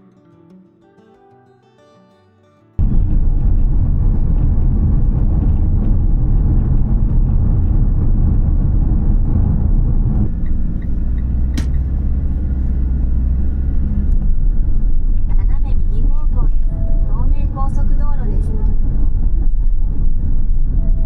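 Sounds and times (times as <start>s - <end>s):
car road and engine rumble: 2.8s - 21.0s
sharp click: 10.4s - 12.0s.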